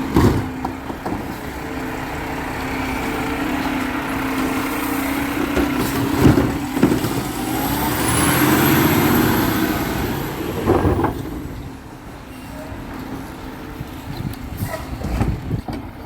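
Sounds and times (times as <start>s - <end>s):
clunks: 0.0s - 1.8s, 3.0s - 13.4s
garbage truck engine running: 0.0s - 16.0s.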